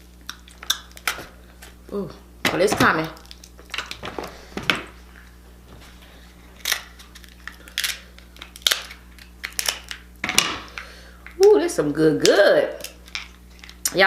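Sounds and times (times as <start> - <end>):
crab shell cracking: 0.0 - 1.8, 2.9 - 4.1, 6.6 - 11.6, 12.2 - 14.0.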